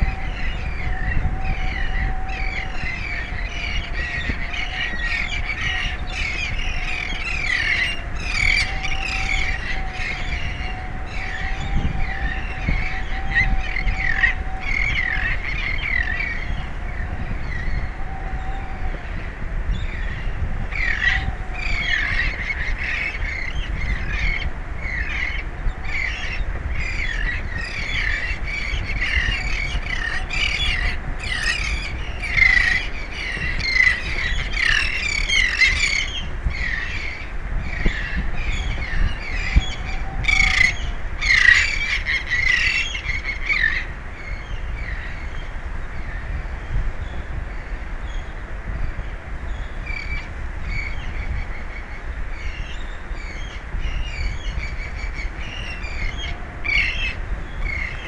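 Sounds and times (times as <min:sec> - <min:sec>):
birds squawking: 0:00.0 - 0:11.5, 0:20.8 - 0:43.9
wind: 0:00.0 - 0:58.0.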